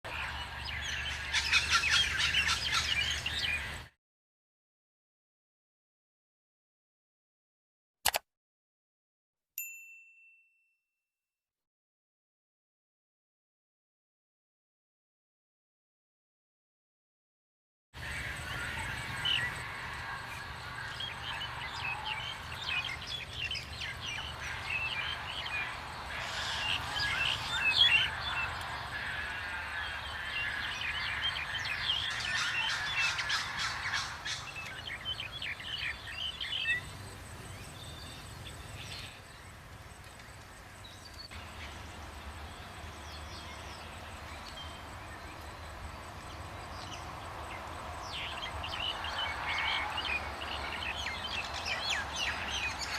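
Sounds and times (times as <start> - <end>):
wild birds chirping and calling: 0.1 - 3.9, 18.0 - 52.9.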